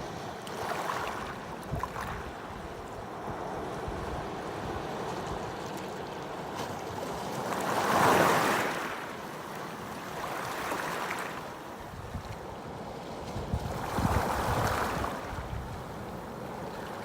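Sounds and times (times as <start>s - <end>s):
ocean waves breaking: 0.0s - 11.8s.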